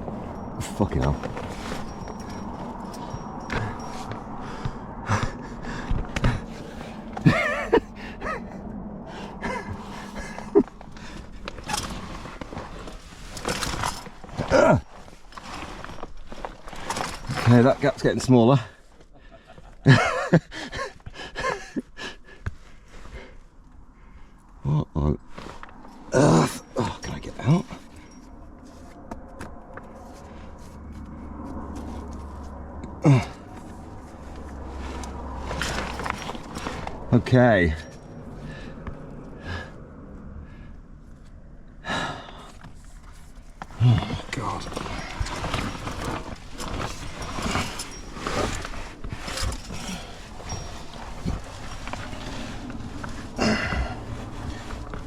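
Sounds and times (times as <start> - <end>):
gear scraping against rock: 0.0 - 4.3, 9.4 - 18.9, 33.0 - 38.6, 42.5 - 55.0
strained breathing: 0.0 - 7.2, 7.8 - 17.4, 20.5 - 24.6, 29.8 - 55.0
grunts of effort: 3.5 - 12.0, 14.4 - 15.0, 26.1 - 28.0, 32.8 - 33.7, 41.8 - 42.6, 43.7 - 48.8, 53.3 - 54.7
person groaning with effort: 14.4 - 14.8, 26.1 - 27.6, 32.8 - 33.6, 43.8 - 44.4, 53.4 - 54.1.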